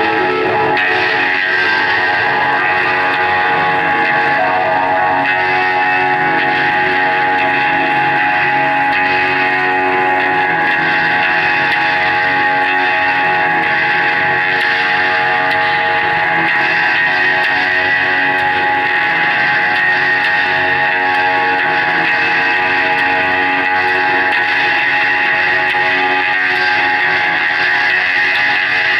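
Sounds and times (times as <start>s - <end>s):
live band playing guitar music: 0.0s - 11.1s.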